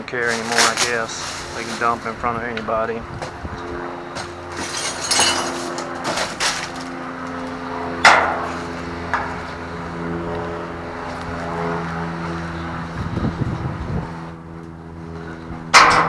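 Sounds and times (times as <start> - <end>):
steady engine hum: 0.0 - 16.0
trash crashing into dumpster: 0.2 - 2.0, 4.5 - 7.0.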